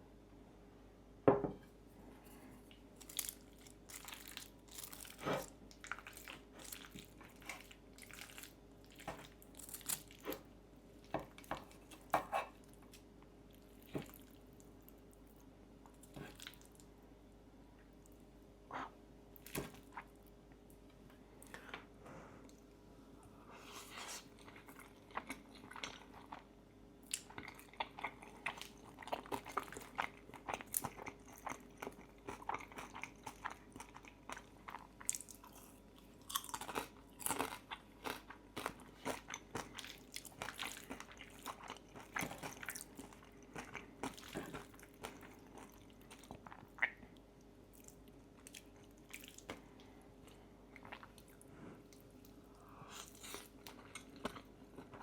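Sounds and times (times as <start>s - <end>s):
faint steady hum: 0.0s - 55.0s
crunching bacon: 3.0s - 10.5s, 27.1s - 46.4s.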